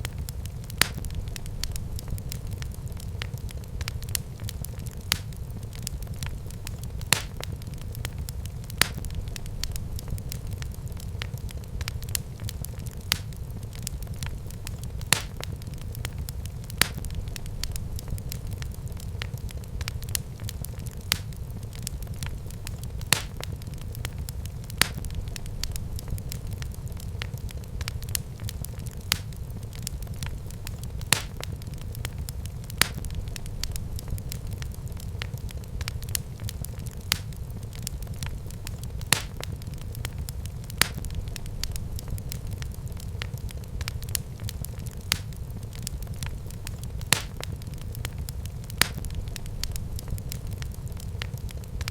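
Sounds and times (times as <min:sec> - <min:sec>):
fire crackling and popping: 0:00.0 - 0:51.9
fire flames rumbling: 0:00.0 - 0:51.9.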